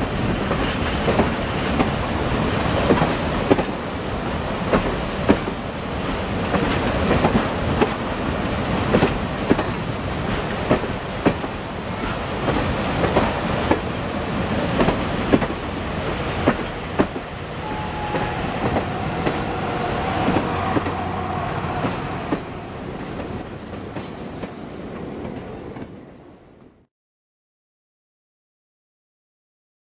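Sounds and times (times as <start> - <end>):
train wheels clicking over rail joints: 0.1 - 8.1, 8.7 - 17.6.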